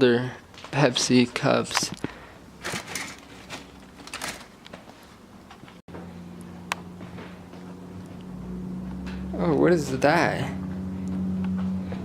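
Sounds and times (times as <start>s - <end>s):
steady low hum: 5.0s - 12.0s.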